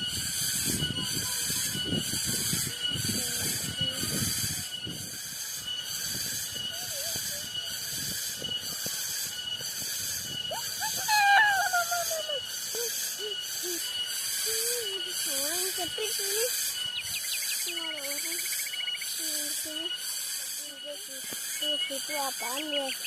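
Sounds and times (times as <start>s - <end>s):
cicadas droning: 0.0s - 23.0s
falling wavering call: 0.0s - 23.0s.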